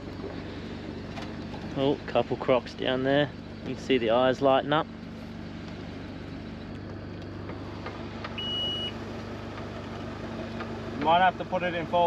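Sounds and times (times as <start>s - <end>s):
engine idling: 0.0s - 12.0s
short high-pitched beep: 8.4s - 9.0s.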